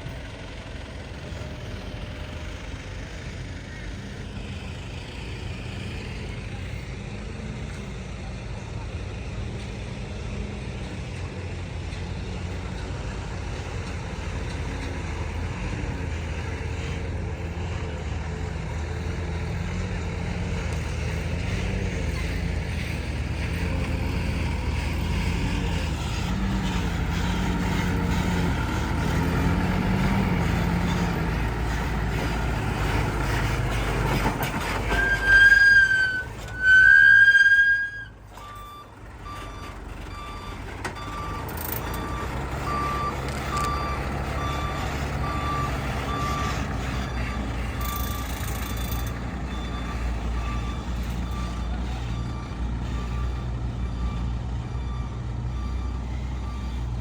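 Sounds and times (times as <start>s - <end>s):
diesel truck engine under load: 0.0s - 57.0s
truck horn blasts: 34.9s - 38.1s.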